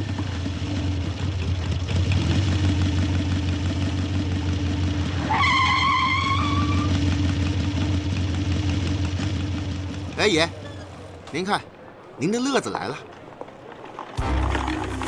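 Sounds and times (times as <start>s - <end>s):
motorcycle engine running: 0.0s - 5.2s, 6.8s - 10.2s.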